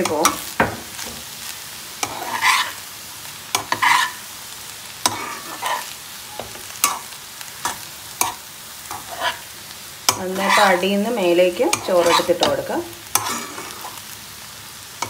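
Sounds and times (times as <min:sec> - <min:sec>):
rice scraping swishes: 0:02.1 - 0:02.8, 0:03.7 - 0:04.2.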